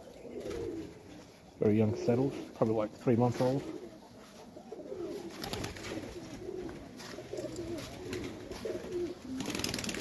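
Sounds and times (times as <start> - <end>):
pigeons cooing: 0.0 - 2.6, 3.2 - 10.0.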